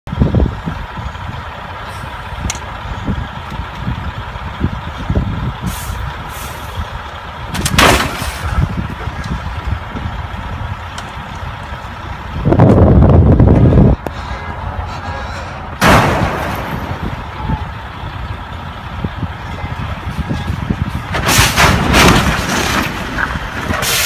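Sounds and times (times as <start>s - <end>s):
diesel truck engine running: 0.1s - 24.0s
air brake hiss: 5.7s - 6.7s.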